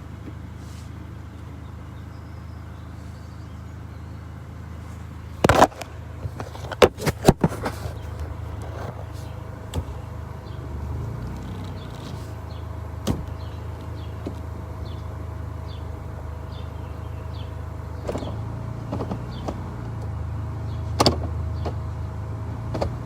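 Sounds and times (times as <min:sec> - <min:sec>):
car engine idling: 0:00.0 - 0:23.0
loud thump: 0:13.0 - 0:13.3.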